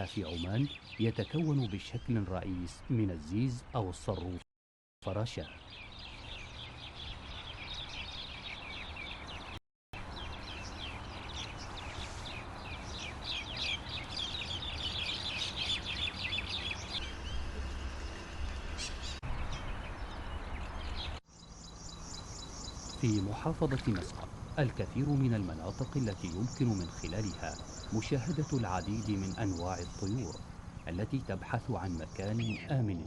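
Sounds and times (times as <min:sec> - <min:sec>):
birds chirping and trilling: 0:00.0 - 0:04.4, 0:05.0 - 0:33.0.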